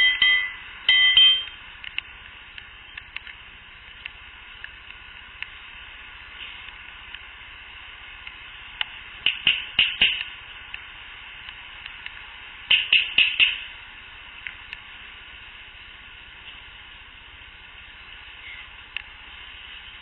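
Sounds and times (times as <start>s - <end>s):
field recorder hiss: 0.0s - 20.0s
sharp clicks or pops: 8.8s - 10.8s, 12.7s - 13.6s.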